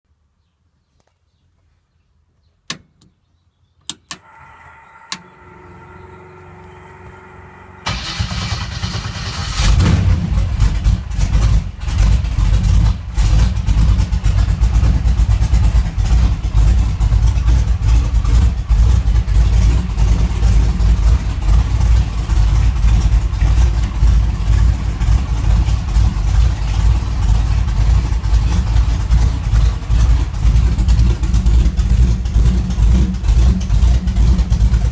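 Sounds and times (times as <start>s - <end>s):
sharp clicks: 3.8s - 4.3s
starter cranking: 4.0s - 10.9s
faint steady hum: 4.1s - 8.4s
car engine idling unevenly: 4.2s - 34.9s.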